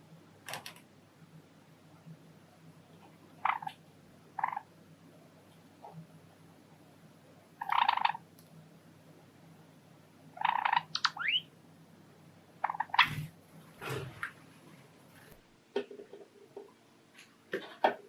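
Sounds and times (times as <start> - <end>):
sparrows chirping and calling: 7.6 - 8.2, 10.4 - 11.5, 12.6 - 13.3.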